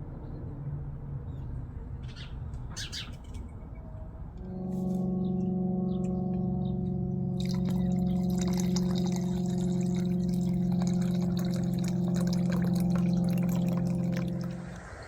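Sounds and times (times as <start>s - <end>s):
low drone of held tones: 3.6s - 15.0s
water pouring with spattering: 7.4s - 15.0s.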